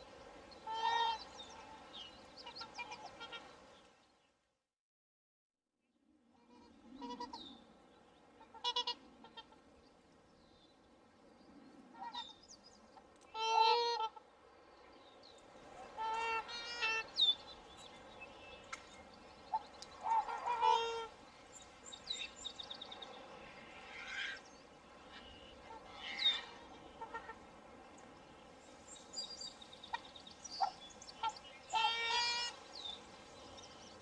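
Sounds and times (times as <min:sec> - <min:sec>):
swans honking: 0:00.0 - 0:03.6, 0:06.5 - 0:07.4, 0:08.4 - 0:09.6, 0:13.3 - 0:14.3, 0:15.7 - 0:17.4, 0:19.5 - 0:21.2, 0:25.0 - 0:27.6, 0:29.8 - 0:32.8.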